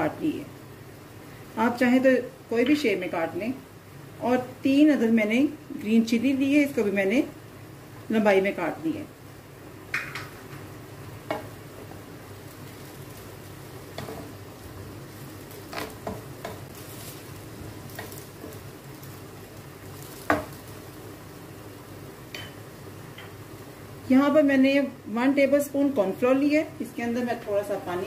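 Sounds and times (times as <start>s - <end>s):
food sizzling in a pan: 0.0s - 28.0s
spatula scraping and knocking pan: 13.8s - 14.4s, 15.5s - 18.6s.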